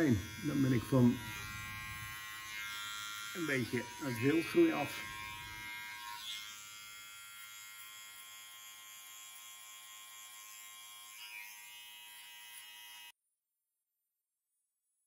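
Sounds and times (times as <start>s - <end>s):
electric hair clipper buzzing: 0.0s - 13.2s.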